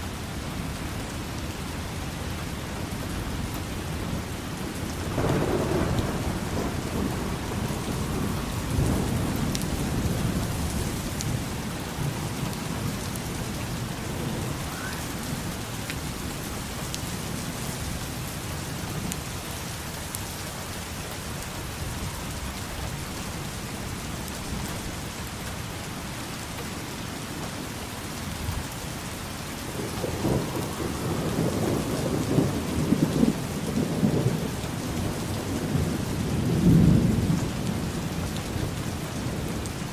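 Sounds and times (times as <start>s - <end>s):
heavy rain: 0.0s - 39.9s
low rolling thunder: 2.9s - 19.2s, 29.3s - 39.9s.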